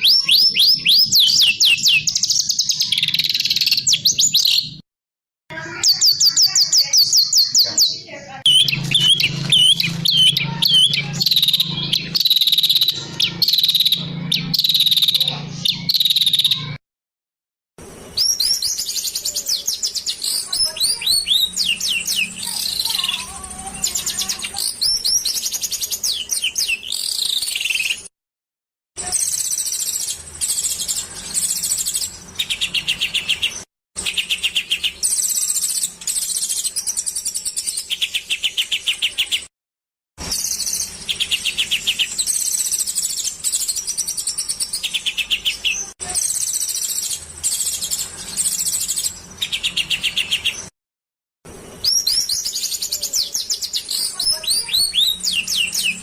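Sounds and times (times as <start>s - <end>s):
songbirds chirping and trilling: 0.0s - 4.8s, 5.5s - 16.8s, 17.8s - 28.1s, 29.0s - 39.5s, 40.2s - 50.7s, 51.5s - 56.0s.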